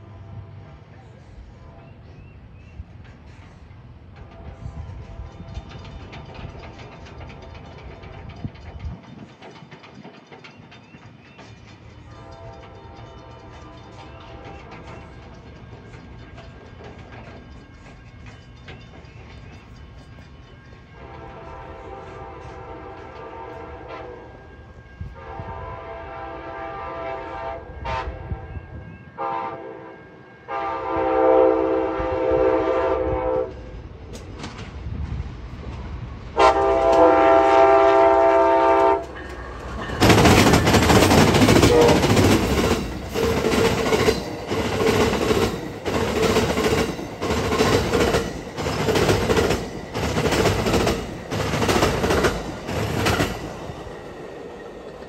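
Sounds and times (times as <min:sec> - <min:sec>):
train passing loudly: 0:00.0 - 0:55.0
wheels clattering over rail joints: 0:05.1 - 0:21.4, 0:36.6 - 0:55.0
locomotive horn blasts: 0:12.1 - 0:14.5, 0:21.0 - 0:33.7, 0:36.4 - 0:39.2, 0:41.4 - 0:42.7.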